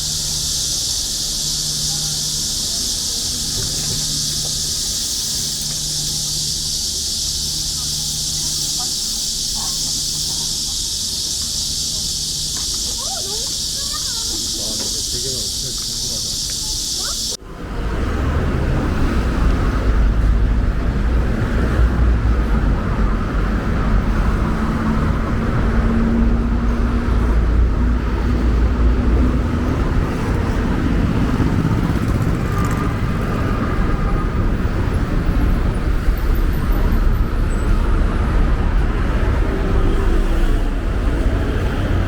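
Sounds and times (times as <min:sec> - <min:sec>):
engine tone: 0:00.0 - 0:19.2
road traffic rumble: 0:00.0 - 0:42.0.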